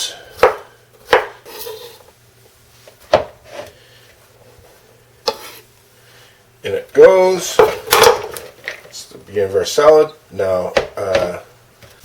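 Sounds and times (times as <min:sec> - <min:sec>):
knife chopping on cutting board: 0:00.4 - 0:01.9, 0:03.1 - 0:03.7
knife blade scraping: 0:01.4 - 0:02.0, 0:05.3 - 0:05.7.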